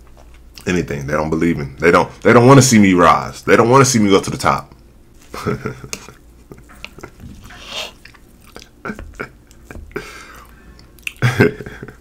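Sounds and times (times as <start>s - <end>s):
person chewing: 5.2s - 11.3s
breathy laugh: 8.6s - 12.0s.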